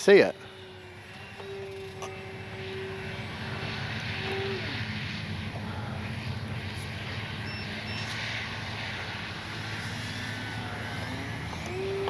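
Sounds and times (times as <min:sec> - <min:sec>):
model plane motor buzzing: 0:00.0 - 0:12.0.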